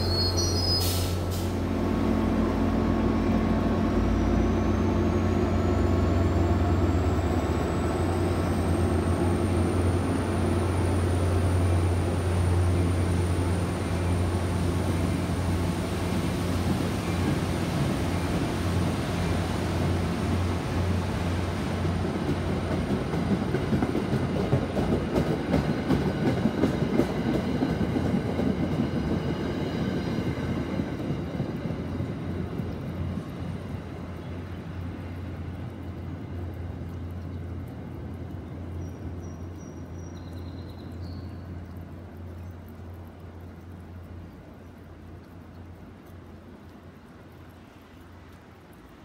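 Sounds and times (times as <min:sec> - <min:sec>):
low train hum: 0:00.0 - 0:49.0
train wheels clicking over rails: 0:21.6 - 0:31.9.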